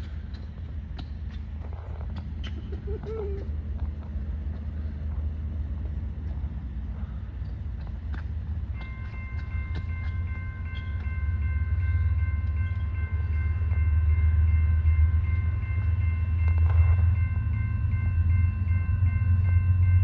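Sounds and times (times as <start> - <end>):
diesel locomotive engine rumble: 0.0 - 20.0
high-pitched ringing tones: 8.7 - 20.0.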